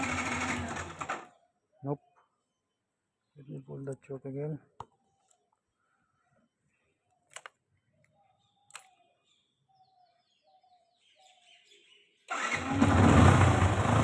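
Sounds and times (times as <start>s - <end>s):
motorcycle engine starting and running: 0.0s - 1.4s, 12.3s - 14.0s
bird chirps: 1.3s - 12.3s
sharp clicks: 7.2s - 9.0s.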